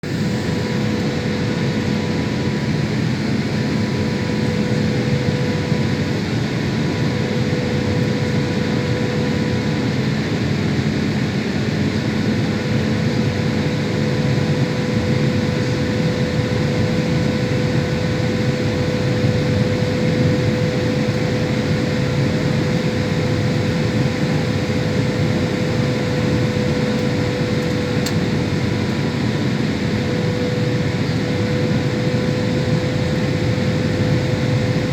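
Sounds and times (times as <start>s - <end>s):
constant engine hum: 0.0s - 34.9s
rush of air in jet cabin: 0.0s - 34.9s.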